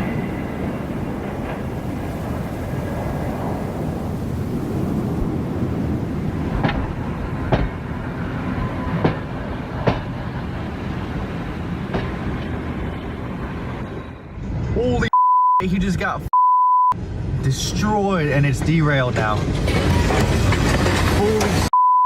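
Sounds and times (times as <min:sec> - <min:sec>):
wheels clacking over rail joints: 0:00.0 - 0:03.8, 0:05.9 - 0:13.3, 0:18.4 - 0:21.7
train rumbling on rails: 0:00.0 - 0:15.1, 0:17.0 - 0:21.7.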